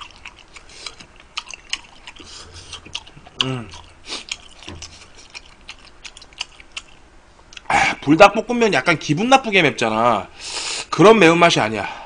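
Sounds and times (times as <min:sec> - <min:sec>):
person chewing wetly: 0:00.0 - 0:07.7
short vocal sound: 0:02.2 - 0:03.8.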